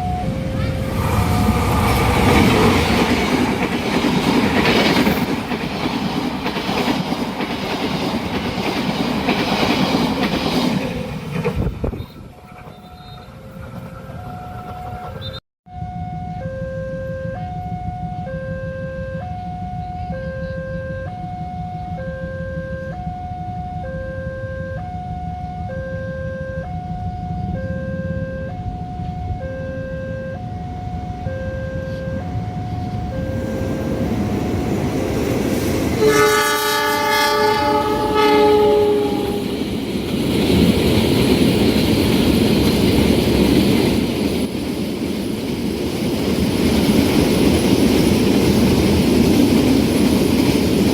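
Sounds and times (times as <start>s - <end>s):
train horn blast: 0.0s - 2.6s, 36.0s - 39.6s
train passing rumble: 0.0s - 23.8s, 30.2s - 50.9s
level crossing two-tone alarm: 15.7s - 34.6s.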